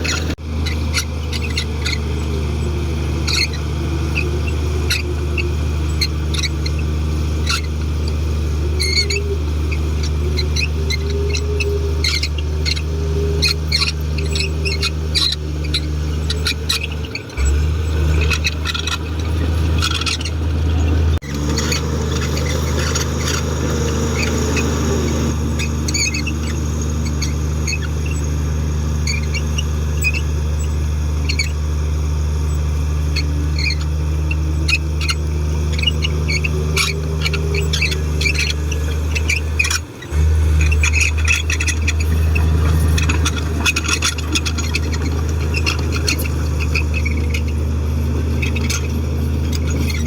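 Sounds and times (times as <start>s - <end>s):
bulldozer diesel engine running: 0.0s - 50.0s
high metal squeaks and clicks: 0.0s - 50.0s.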